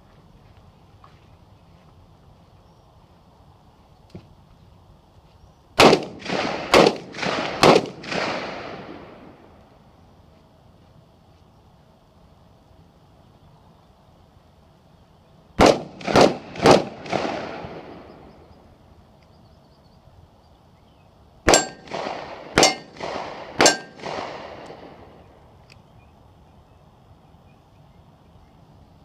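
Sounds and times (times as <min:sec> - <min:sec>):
gunshots echoing: 0:05.8 - 0:09.3, 0:15.6 - 0:18.1, 0:21.5 - 0:25.1
steel targets clanging: 0:21.5 - 0:21.9, 0:22.6 - 0:23.0, 0:23.6 - 0:24.0.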